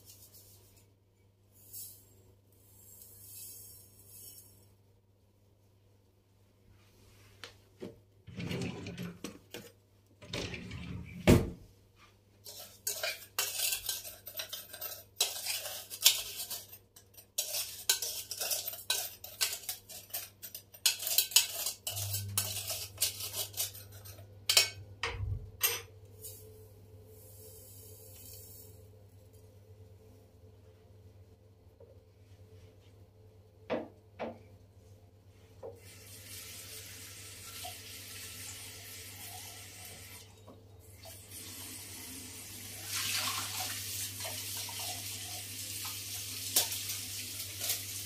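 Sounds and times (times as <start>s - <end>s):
dishes and cutlery clinking: 12.4s - 25.9s
faint hiss: 26.1s - 29.1s.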